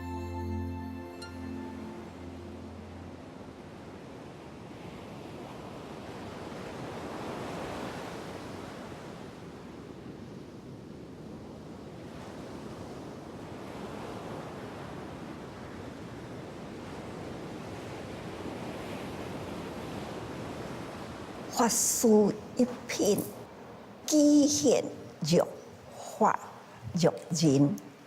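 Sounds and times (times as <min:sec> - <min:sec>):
rushing surf-like noise: 0:01.4 - 0:09.4.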